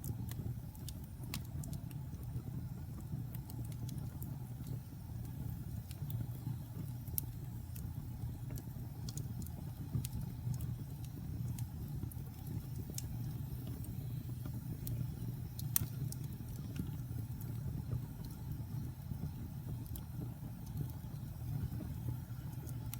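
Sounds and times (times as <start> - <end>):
fire crackling and popping: 0.0 - 22.9.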